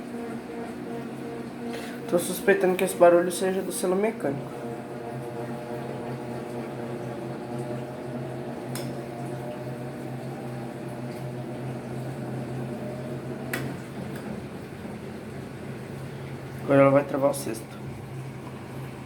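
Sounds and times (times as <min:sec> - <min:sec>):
washing machine humming: 0:00.0 - 0:19.0.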